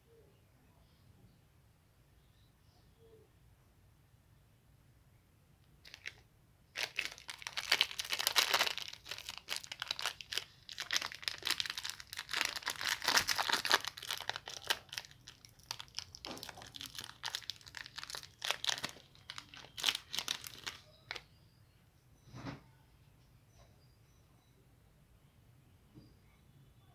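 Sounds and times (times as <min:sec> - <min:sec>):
plastic wrapper crinkling: 0:05.8 - 0:06.2, 0:06.8 - 0:21.2.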